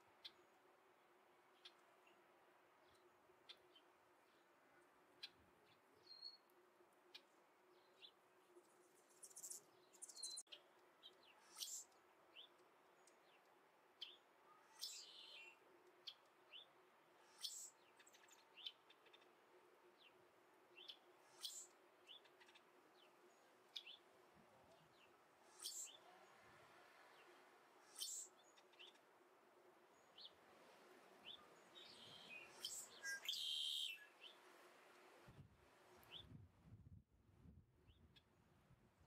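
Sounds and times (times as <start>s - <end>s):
high-pitched bird chirps: 32.6s - 34.0s.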